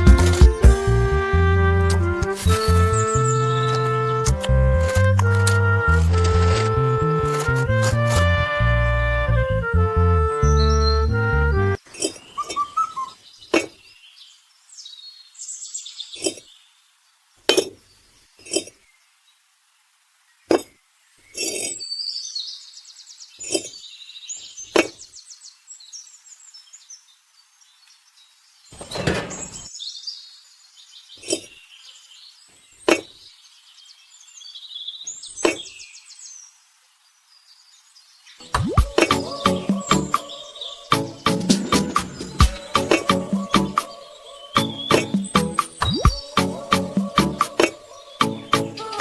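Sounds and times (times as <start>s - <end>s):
birds chirping: 2.4s - 8.0s, 10.2s - 16.8s, 20.4s - 49.0s
rattling scrape: 28.8s - 29.7s.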